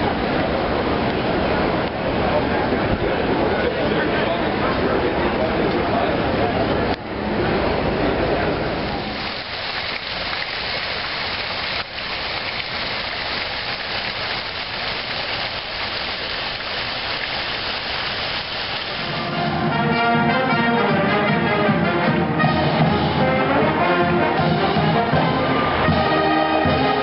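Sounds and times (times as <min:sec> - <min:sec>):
rushing splashing water: 0:07.5 - 0:21.1
brass music: 0:19.0 - 0:27.0.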